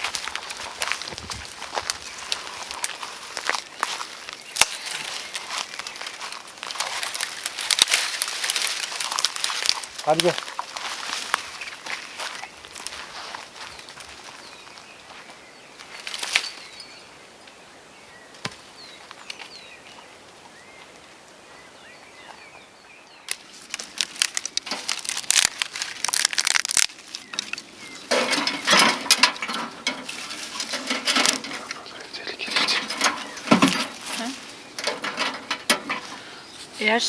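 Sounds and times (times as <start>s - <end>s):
dry twigs snapping and crackling: 0.0s - 14.4s, 15.8s - 16.7s, 23.2s - 36.3s
faint birdsong: 0.0s - 37.0s.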